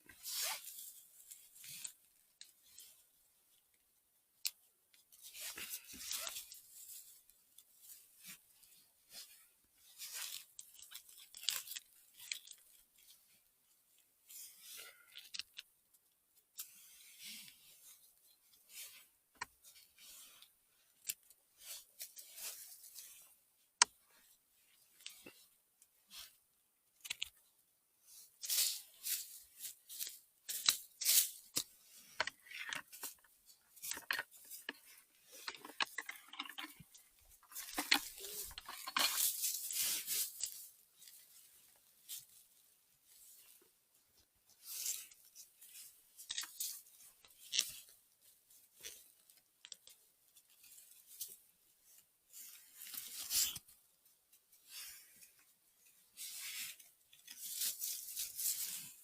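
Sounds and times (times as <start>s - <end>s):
dry leaves and twigs crackling: 28.4s - 42.4s, 56.2s - 59.0s.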